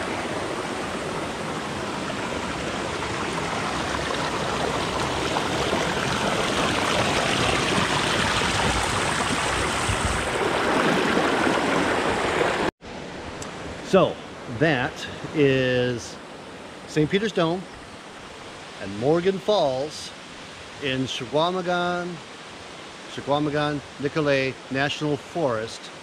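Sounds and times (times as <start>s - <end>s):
waterfall rushing over rock: 0.0s - 12.7s.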